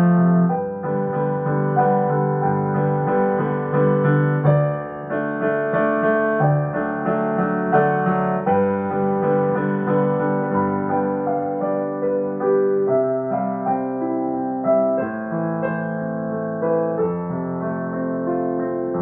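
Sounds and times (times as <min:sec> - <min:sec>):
piano melody over chords: 0:00.0 - 0:19.0.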